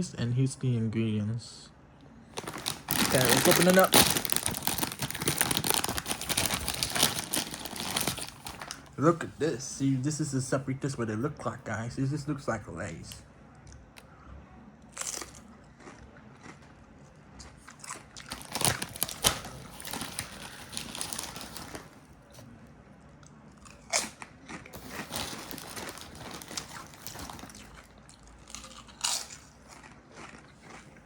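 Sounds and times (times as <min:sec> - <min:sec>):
potato chips crunching: 0:02.4 - 0:09.0, 0:14.9 - 0:16.6, 0:17.4 - 0:22.0, 0:23.6 - 0:31.0
quiet chewing: 0:13.6 - 0:18.8, 0:23.1 - 0:31.0.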